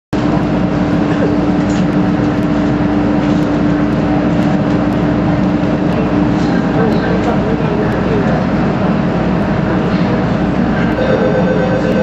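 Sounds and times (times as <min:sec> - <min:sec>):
electric train equipment humming: 0:00.2 - 0:12.0.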